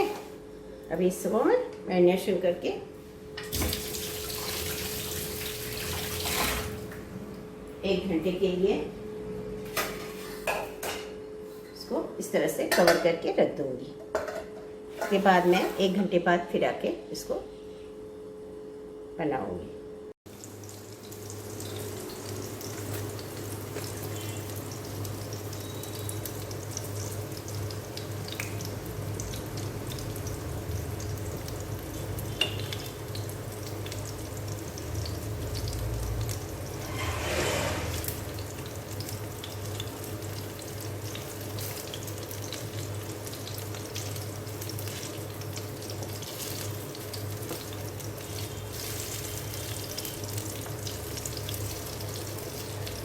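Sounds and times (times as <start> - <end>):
chicken sizzling in hot oil: 20.3 - 53.0.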